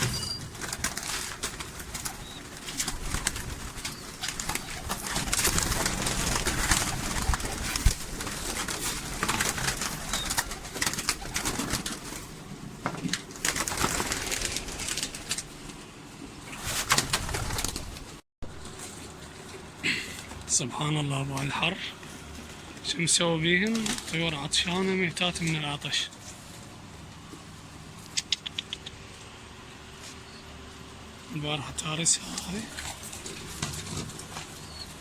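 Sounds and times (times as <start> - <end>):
pigeons cooing: 0.0 - 12.0, 32.4 - 35.0
wings flapping: 0.0 - 15.8, 16.4 - 19.5, 23.6 - 24.9, 32.4 - 35.0.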